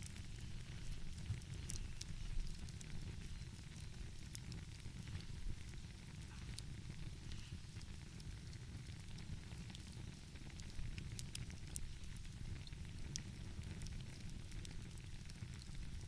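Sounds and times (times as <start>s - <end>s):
fire popping and snapping: 0.0s - 16.0s
wood fire crackling: 0.0s - 16.0s.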